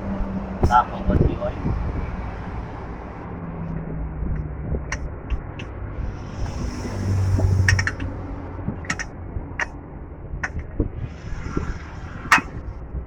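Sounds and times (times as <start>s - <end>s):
steady low rumble: 0.0s - 13.0s
tools clicking and knocking: 7.4s - 8.2s, 8.8s - 9.8s, 10.4s - 10.7s, 12.3s - 12.5s.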